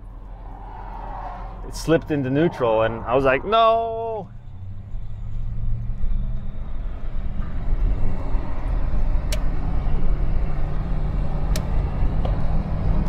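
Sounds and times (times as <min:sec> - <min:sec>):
car engine cruising: 0:00.0 - 0:13.0
road noise: 0:00.0 - 0:13.0
sharp clicks: 0:09.2 - 0:09.5, 0:11.4 - 0:11.7.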